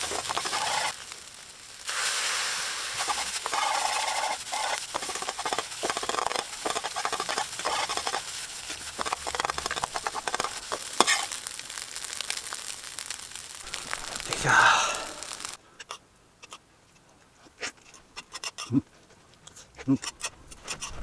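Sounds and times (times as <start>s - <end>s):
utensil scraping a pan: 0.0s - 1.1s, 1.9s - 14.4s, 20.0s - 21.0s
rice sizzling in a frying pan: 0.0s - 15.6s.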